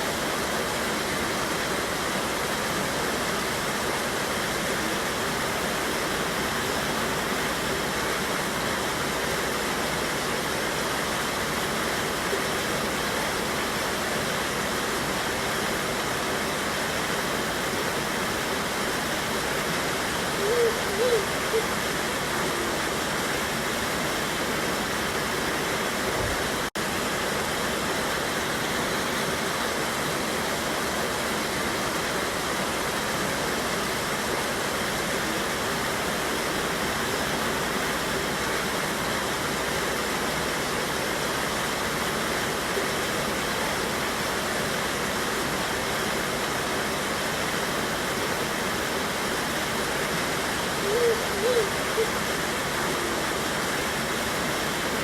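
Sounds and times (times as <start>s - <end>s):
waterfall roar: 0.0s - 55.0s.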